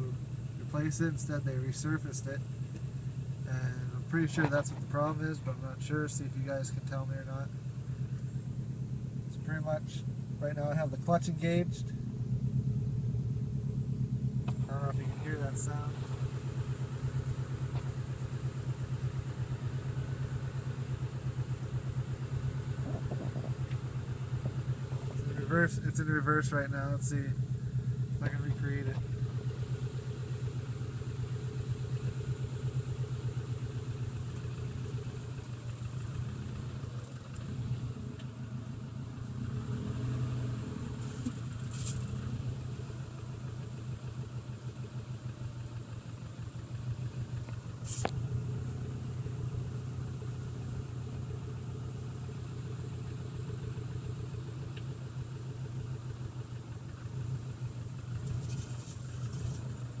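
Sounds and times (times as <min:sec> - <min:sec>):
car engine idling: 0:00.0 - 1:00.0.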